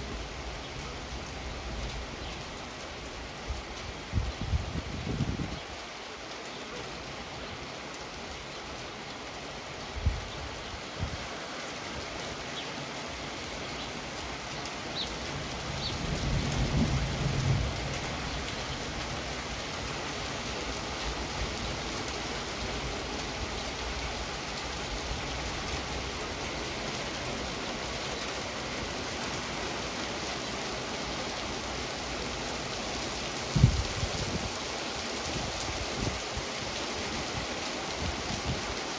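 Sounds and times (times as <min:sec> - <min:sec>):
steady rain: 0:00.0 - 0:38.9
low rumble of thunder: 0:15.2 - 0:19.4.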